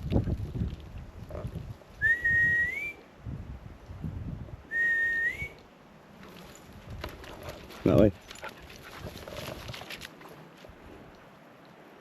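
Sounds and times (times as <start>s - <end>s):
whistle calling dogs: 2.0s - 3.0s, 4.7s - 5.6s.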